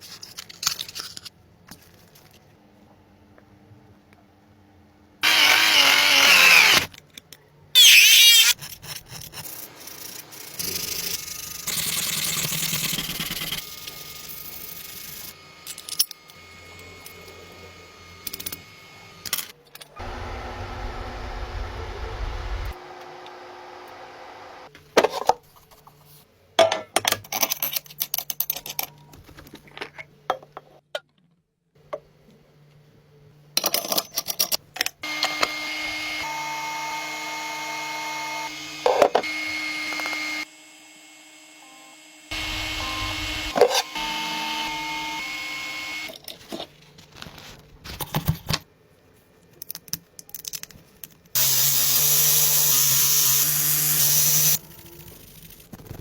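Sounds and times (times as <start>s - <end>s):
power tool running with whine: 5.2s - 6.9s, 13.6s - 19.3s, 20.0s - 24.7s, 35.0s - 46.1s, 51.4s - 54.6s.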